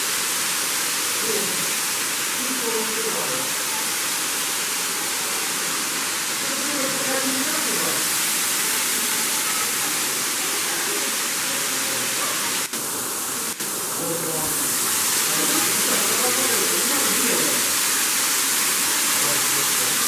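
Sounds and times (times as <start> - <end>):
waterfall rushing: 0.0 - 20.0
faint voices: 2.4 - 17.8.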